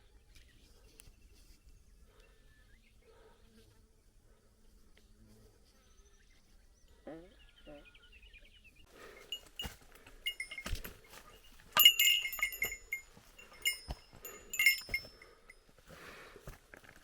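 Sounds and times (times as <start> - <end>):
small metal bell jingling: 9.2 - 15.6.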